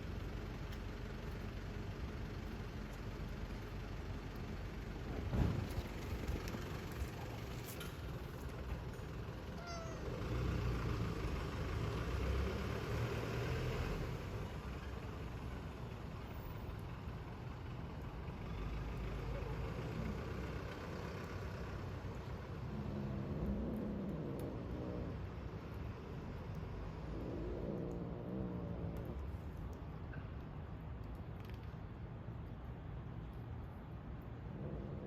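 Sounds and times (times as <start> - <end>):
rumble of street traffic: 0.0 - 35.0
cat meowing: 9.6 - 10.1.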